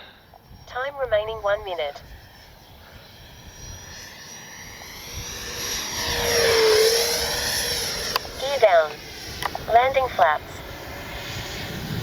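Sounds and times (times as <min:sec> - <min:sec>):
electric ducted fan whining: 0:00.7 - 0:12.0.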